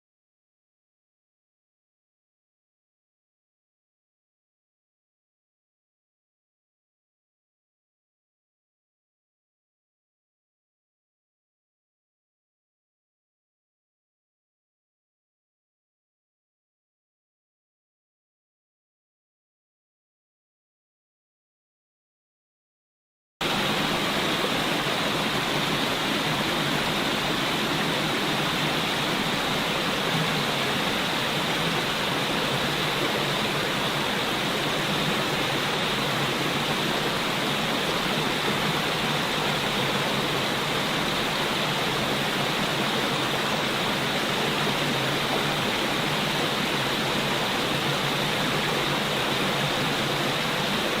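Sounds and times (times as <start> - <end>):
flowing water rushing: 23.4 - 51.0.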